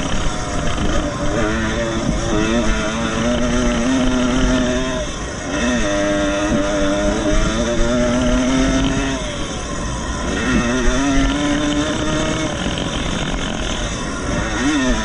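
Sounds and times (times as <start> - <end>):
motorcycle engine revving high: 0.0 - 15.0.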